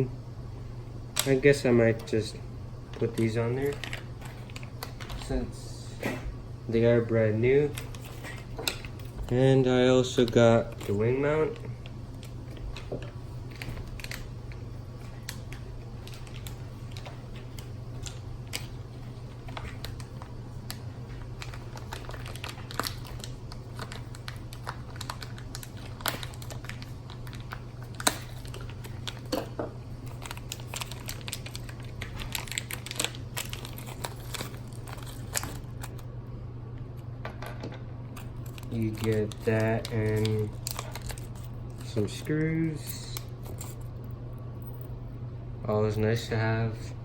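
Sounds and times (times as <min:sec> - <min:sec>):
steady low hum: 0:00.0 - 0:47.0
plastic crinkling: 0:02.9 - 0:05.5, 0:07.4 - 0:36.1, 0:38.1 - 0:44.0.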